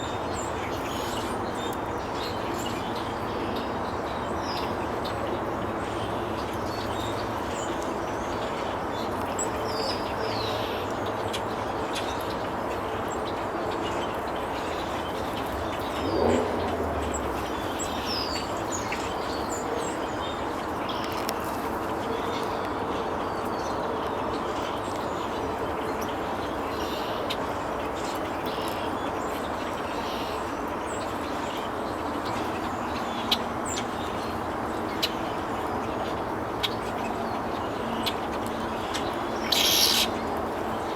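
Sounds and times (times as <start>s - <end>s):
small birds chirping: 9.0s - 22.6s, 25.9s - 40.9s
steady background rush: 14.6s - 19.2s.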